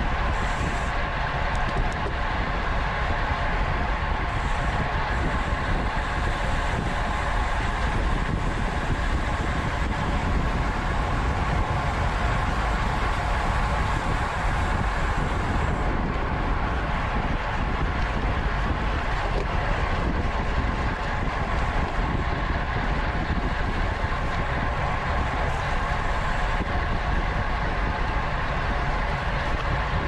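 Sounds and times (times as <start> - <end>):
bicycle tyres and drivetrain: 0.0 - 30.0
wind rushing over microphone: 0.0 - 30.0.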